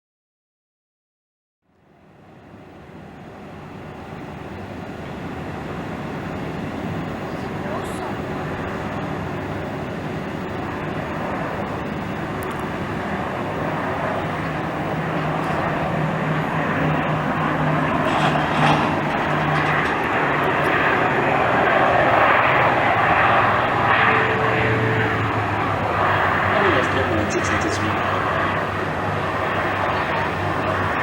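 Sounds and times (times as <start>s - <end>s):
turboprop engines humming: 1.7s - 31.0s.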